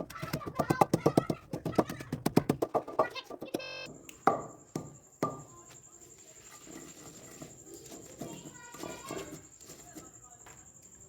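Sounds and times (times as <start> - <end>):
mortar and pestle pounding: 0.0 - 5.5.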